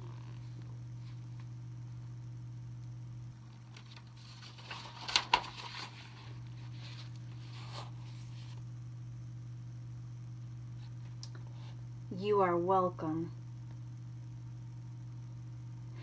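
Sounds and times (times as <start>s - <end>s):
steady low hum: 0.0s - 16.0s
book page turning: 3.7s - 8.6s.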